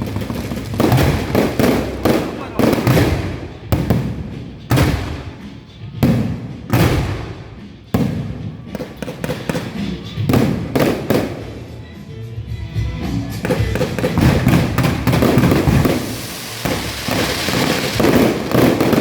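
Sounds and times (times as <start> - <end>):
fireworks booming: 0.0 - 11.8, 13.3 - 19.0.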